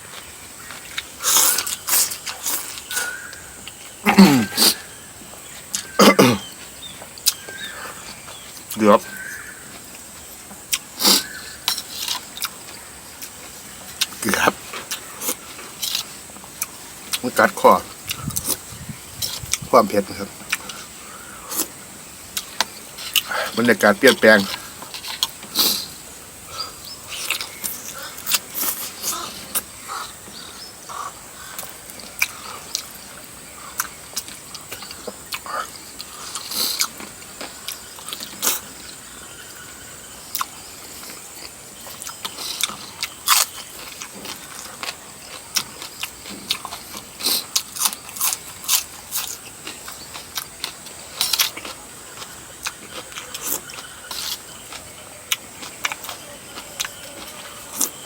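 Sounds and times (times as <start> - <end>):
wet chewing: 0.1 - 58.0
slurps: 0.9 - 3.3, 4.0 - 4.9, 10.7 - 12.5, 24.4 - 26.0, 33.8 - 37.0.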